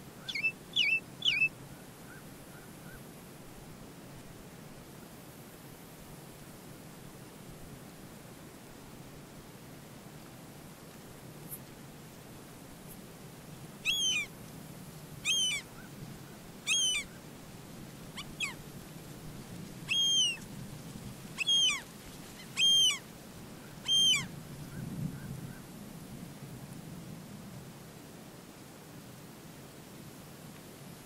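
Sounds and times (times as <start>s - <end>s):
bird calling: 0.2s - 1.5s, 13.8s - 14.3s, 15.2s - 15.9s, 16.6s - 17.2s, 18.2s - 18.6s, 19.9s - 20.4s, 21.4s - 23.0s, 23.8s - 24.3s.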